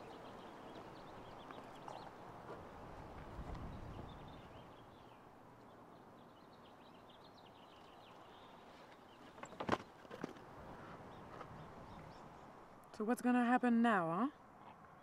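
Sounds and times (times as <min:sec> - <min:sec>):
small birds chirping: 0:00.0 - 0:02.5, 0:03.5 - 0:10.0, 0:11.0 - 0:13.0.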